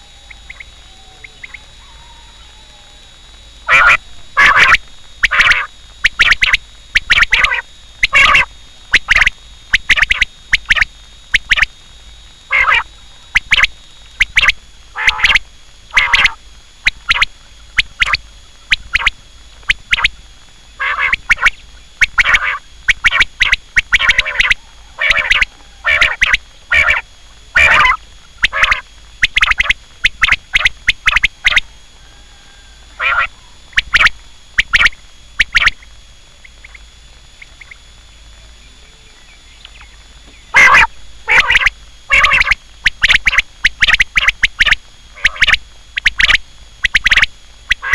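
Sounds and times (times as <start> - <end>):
quail calling: 0.0 - 10.8, 12.5 - 20.2, 20.8 - 36.8, 39.8 - 47.9.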